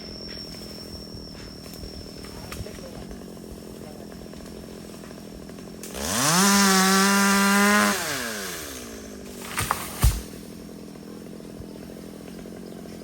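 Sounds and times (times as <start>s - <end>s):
chainsaw revving: 2.2s - 13.0s.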